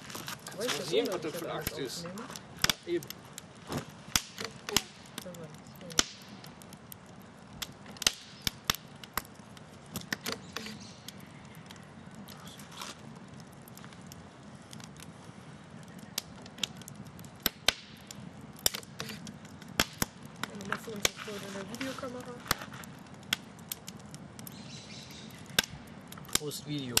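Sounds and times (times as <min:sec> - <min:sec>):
burning wood popping: 0:00.0 - 0:27.0
campfire crackling: 0:00.0 - 0:27.0.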